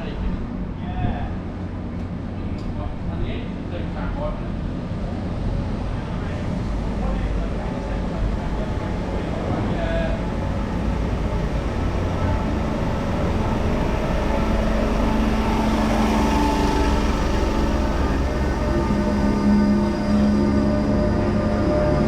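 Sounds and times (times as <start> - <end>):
train heavy rumble: 0.0 - 22.0
humming tone: 10.7 - 22.0.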